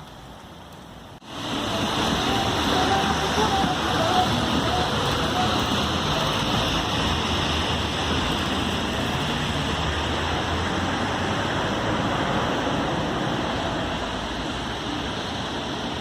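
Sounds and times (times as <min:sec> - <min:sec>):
heavy rain hissing: 0:00.0 - 0:16.0.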